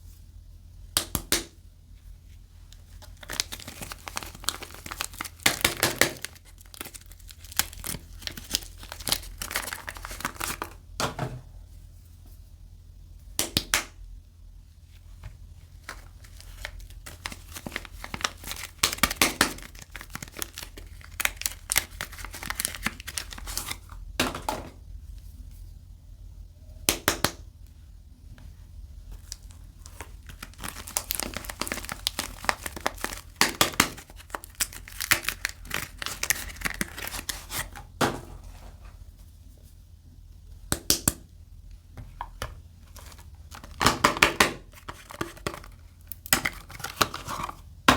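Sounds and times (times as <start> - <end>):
wrapper crinkling: 2.8 - 10.8, 15.6 - 24.0, 29.1 - 38.6, 42.1 - 47.7
packaging tearing: 3.0 - 10.8, 15.8 - 23.8, 29.2 - 37.8, 42.8 - 47.6.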